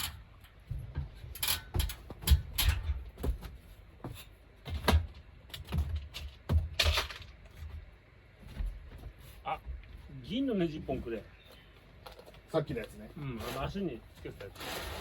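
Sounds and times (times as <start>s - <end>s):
knocks and clunks: 0.0s - 10.1s
dull thuds: 0.6s - 9.8s.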